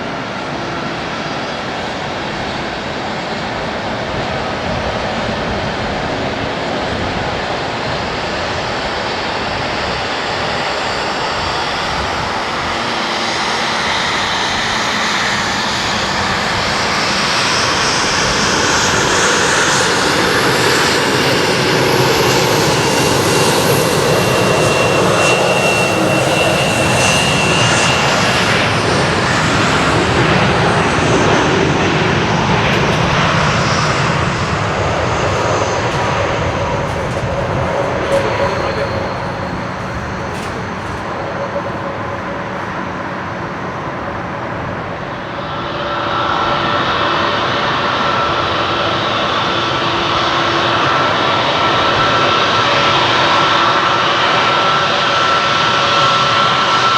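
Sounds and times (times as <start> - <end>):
jet engines roaring: 20.7 - 49.4
thin high whistle: 32.6 - 45.3.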